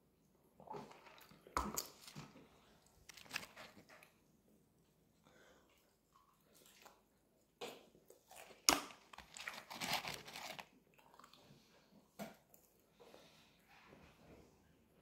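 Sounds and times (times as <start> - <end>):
chewing fries: 0.9 - 4.1, 5.8 - 11.8
fries rustling in cardboard box: 9.2 - 10.7.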